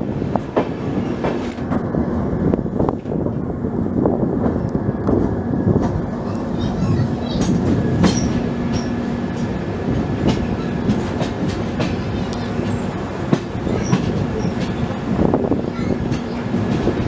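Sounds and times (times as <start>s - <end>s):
train wheels rumbling: 0.0s - 17.0s
wheels clicking over rail joints: 4.4s - 17.0s.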